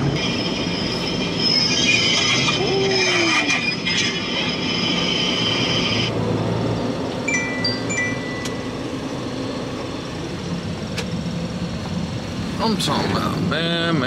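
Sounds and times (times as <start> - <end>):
tow truck brakes squealing: 0.0 - 6.1
vehicle electronic chime beeping: 7.2 - 9.0.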